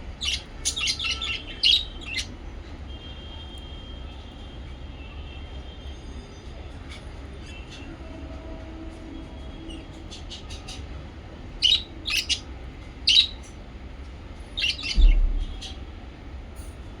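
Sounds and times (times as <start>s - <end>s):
parrots chirping and squawking: 0.0s - 2.4s, 9.7s - 13.6s, 14.5s - 15.8s
low bump: 14.9s - 15.8s.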